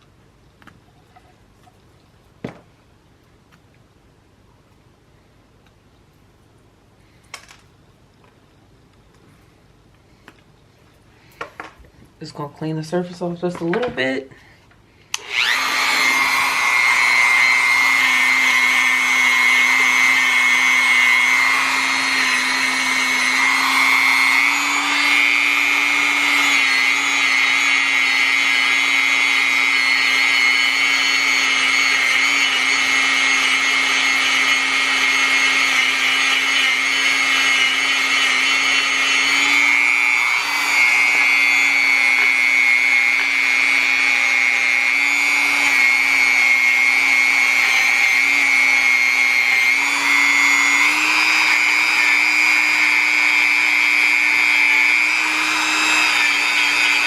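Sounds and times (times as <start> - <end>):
handheld power tool whining: 15.1 - 57.0.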